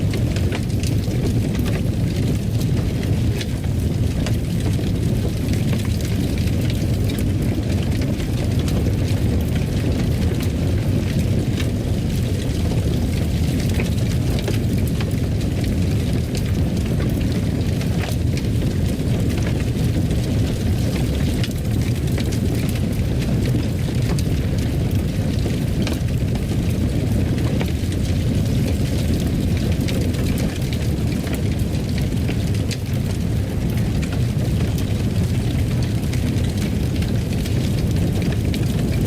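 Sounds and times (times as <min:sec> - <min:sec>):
fireplace fire crackling: 0:00.0 - 0:39.0.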